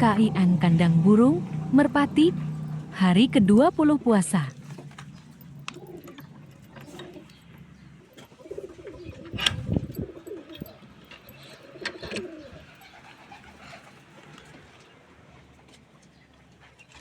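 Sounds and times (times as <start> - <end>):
pigeons cooing: 4.6 - 14.6.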